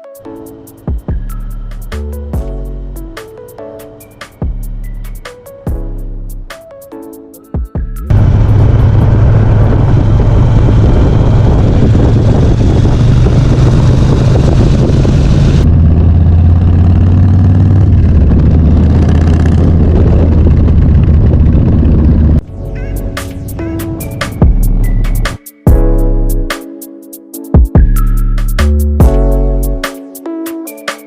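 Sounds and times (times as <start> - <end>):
motorcycle engine droning: 8.0 - 22.4.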